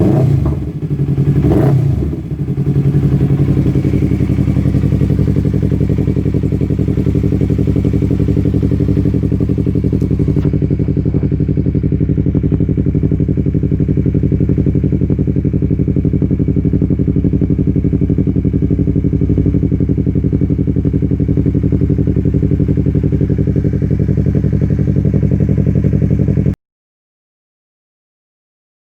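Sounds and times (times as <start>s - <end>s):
motorcycle engine idling: 0.0s - 26.6s.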